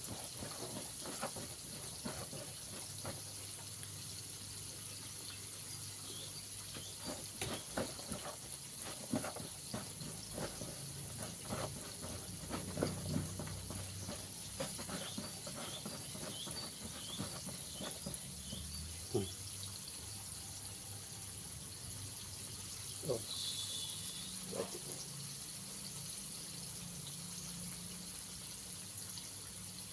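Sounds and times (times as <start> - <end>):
hands tapping and rustling in flour: 0.0 - 4.0, 6.1 - 18.8
faint high chirps: 23.0 - 25.0.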